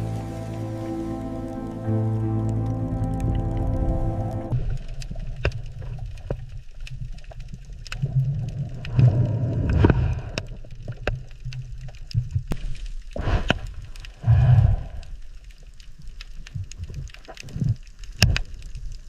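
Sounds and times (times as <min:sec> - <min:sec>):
low underwater rumble: 0:00.0 - 0:19.0
water rushing and gurgling: 0:00.0 - 0:19.0
sharp underwater clicks: 0:04.5 - 0:19.0.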